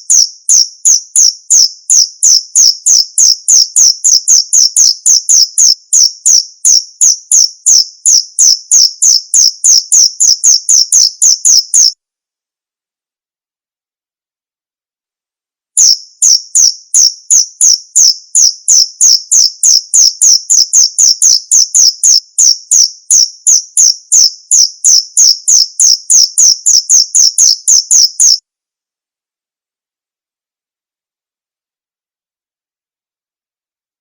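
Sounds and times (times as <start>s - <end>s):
cricket chirping: 0.0s - 12.0s, 15.8s - 28.4s.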